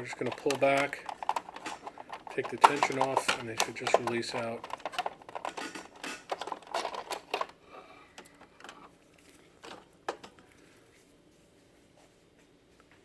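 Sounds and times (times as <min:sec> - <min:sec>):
plastic rollers clicking and rattling: 0:00.0 - 0:09.0, 0:09.6 - 0:10.4.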